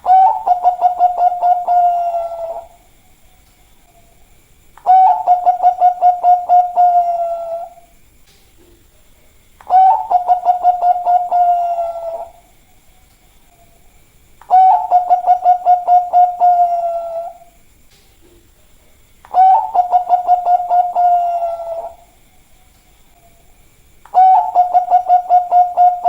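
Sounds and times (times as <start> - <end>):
dove cooing: 0.0 - 2.8, 4.8 - 7.9, 9.6 - 12.6, 14.5 - 17.6, 19.3 - 22.2, 24.1 - 26.0.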